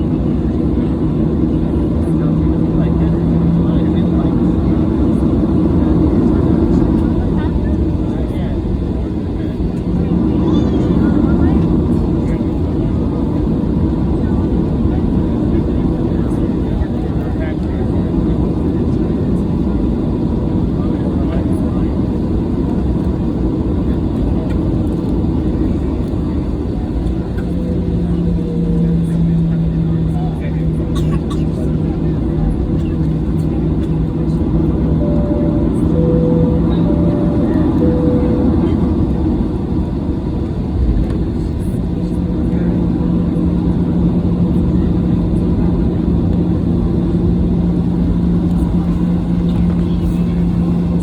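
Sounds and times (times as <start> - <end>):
airliner cabin engine rumble: 0.0 - 51.0
steady low hum: 33.1 - 41.0.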